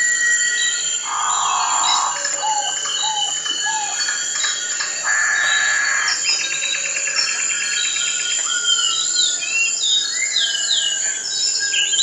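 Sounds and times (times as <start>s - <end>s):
high insect hum: 0.0s - 7.4s
birds calling: 1.0s - 6.5s.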